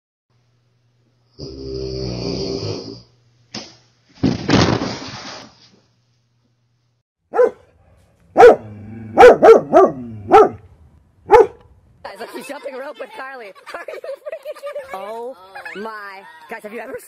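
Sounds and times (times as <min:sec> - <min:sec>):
dog barking: 0:07.3 - 0:10.6, 0:11.3 - 0:11.6.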